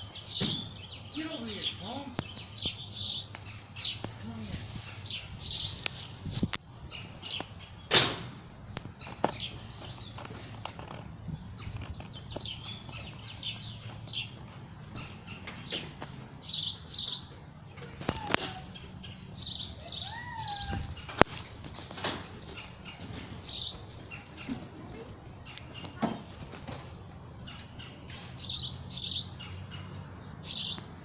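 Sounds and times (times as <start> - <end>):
songbird chirping: 0.0 - 31.0
sharp knocks: 0.4 - 0.8, 7.9 - 8.4.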